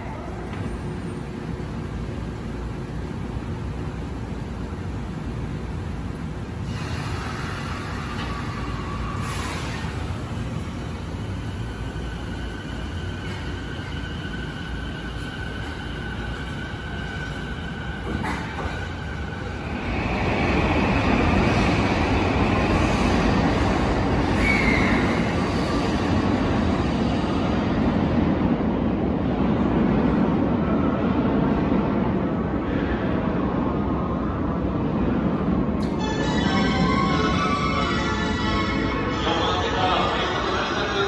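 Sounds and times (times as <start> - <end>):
electric train pulling in: 0.0 - 41.0
station platform hum: 0.0 - 41.0
braking wheels squealing: 24.3 - 25.6.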